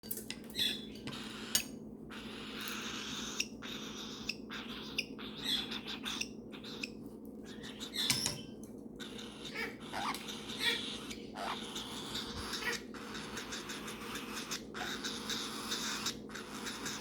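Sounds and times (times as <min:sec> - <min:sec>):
steady low hum: 0:00.1 - 0:17.0
parrots making raspy hissing calls: 0:09.0 - 0:17.0.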